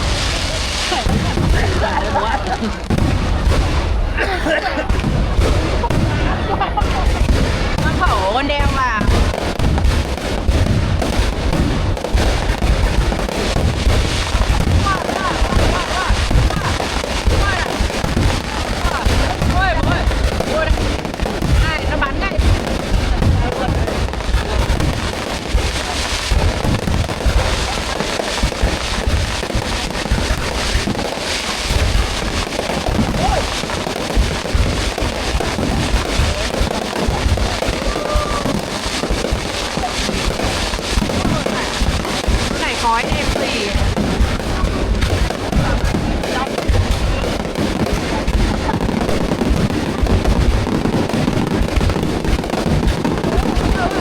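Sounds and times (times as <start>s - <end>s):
fireworks bangs and booms: 0.0s - 54.0s
fireworks crackling: 0.0s - 54.0s.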